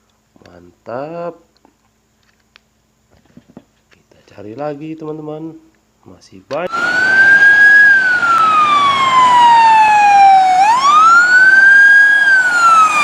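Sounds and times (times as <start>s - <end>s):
siren wailing: 6.7s - 13.0s.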